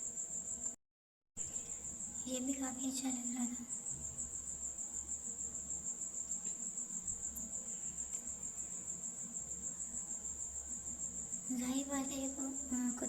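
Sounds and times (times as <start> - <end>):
crickets chirring: 0.0 - 0.8, 1.4 - 13.0.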